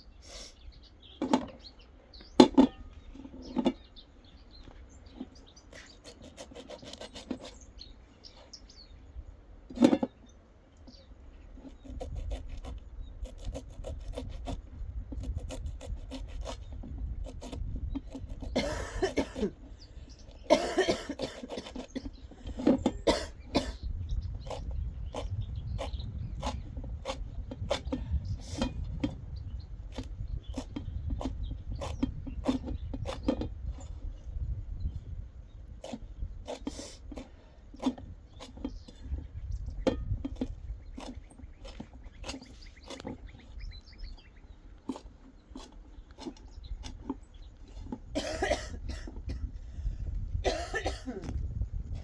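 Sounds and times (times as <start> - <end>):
wind rumble on microphone: 11.0 - 52.0
harsh cough-like burst: 18.6 - 19.6, 20.5 - 21.7, 23.0 - 23.8, 48.2 - 49.5, 50.4 - 51.3.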